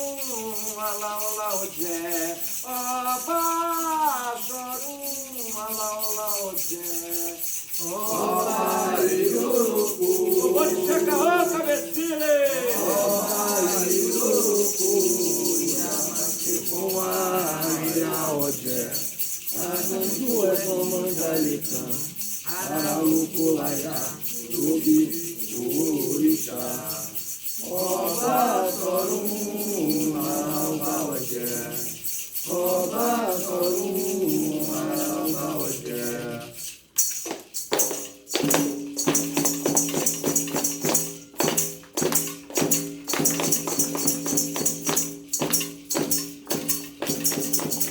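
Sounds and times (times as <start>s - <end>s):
voices singing a chant: 0.0s - 36.8s
rattles shaking: 0.0s - 47.9s
tambourine-like strikes: 0.0s - 47.9s.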